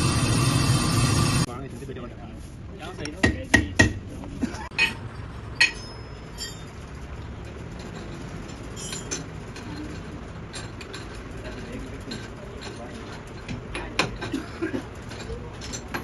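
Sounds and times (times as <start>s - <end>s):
low workshop hum: 0.0s - 16.0s
metal tools clanking: 4.5s - 16.0s.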